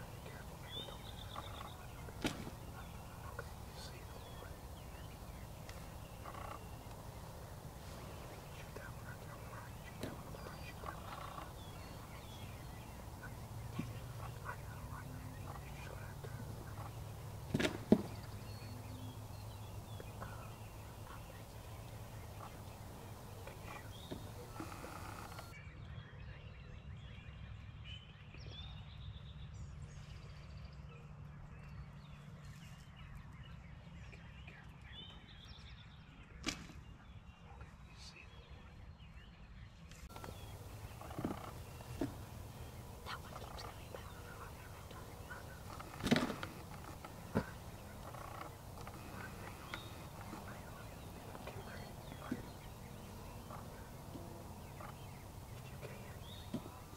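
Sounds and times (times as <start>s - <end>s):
turkey gobbling: 0.0s - 25.5s, 40.1s - 56.9s
faint songbird chirps: 0.0s - 56.9s.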